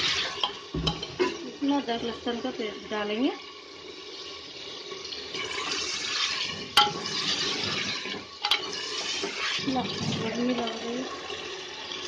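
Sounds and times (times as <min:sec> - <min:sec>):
meat sizzling in oil: 0:00.0 - 0:12.0
spoon knocking against pot: 0:00.4 - 0:01.4, 0:06.8 - 0:07.1, 0:08.4 - 0:08.7.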